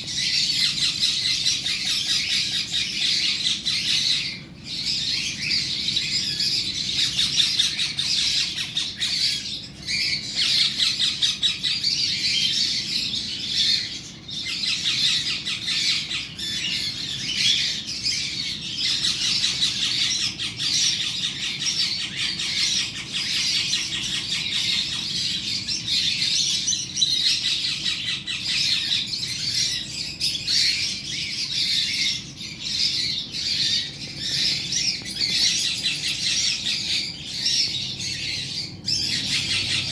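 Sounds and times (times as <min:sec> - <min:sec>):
parrot squawking: 0:00.0 - 0:39.9.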